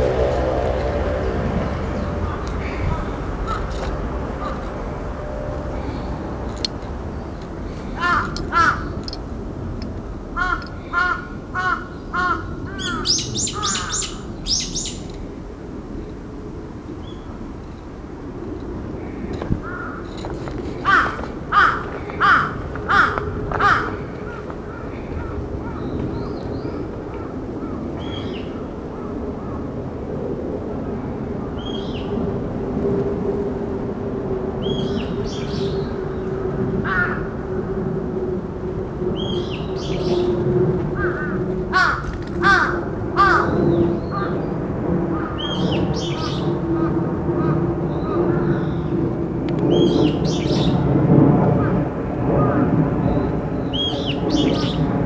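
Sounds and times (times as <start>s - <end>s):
steady low background noise: 0.0s - 55.0s
bird calling: 10.4s - 15.1s.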